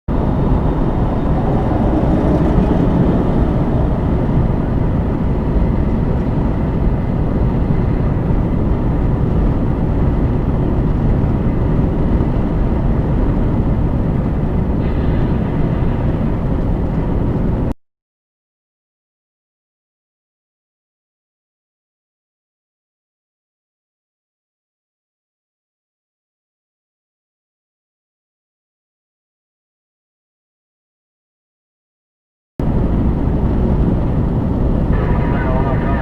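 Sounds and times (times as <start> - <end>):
vehicle driving at highway speed: 0.1 - 17.8, 32.6 - 36.0.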